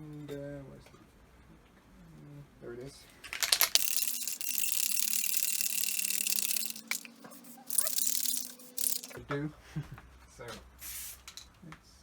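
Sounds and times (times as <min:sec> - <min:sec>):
quick clicks: 0:03.4 - 0:09.2
spray paint can hissing: 0:03.8 - 0:09.2.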